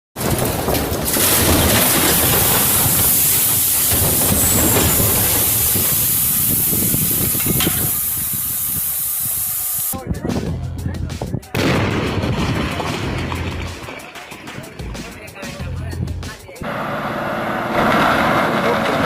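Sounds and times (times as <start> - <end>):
loud hissing rush: 1.7 - 10.0.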